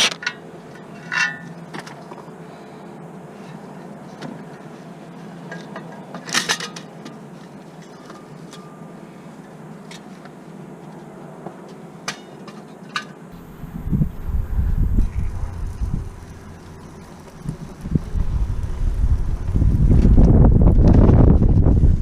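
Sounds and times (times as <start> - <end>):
steady low hum: 13.3 - 22.0
wind buffeting microphone: 13.4 - 22.0.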